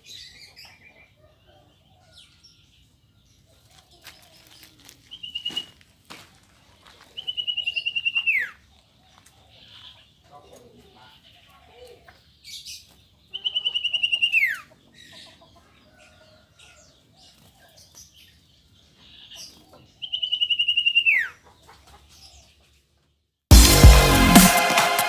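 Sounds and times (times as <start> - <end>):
loud electronic music: 23.5 - 25.0.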